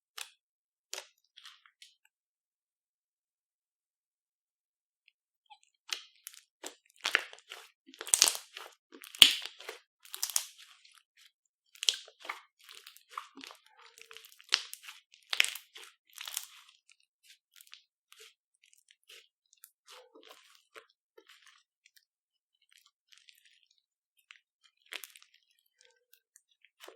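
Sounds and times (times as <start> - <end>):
slime squished by hand: 5.9 - 10.9, 11.8 - 16.8.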